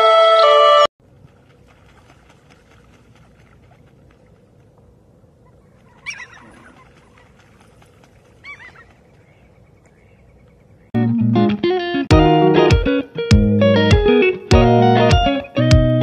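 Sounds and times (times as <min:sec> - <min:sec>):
parrot calling: 0:05.4 - 0:06.9, 0:08.4 - 0:10.3.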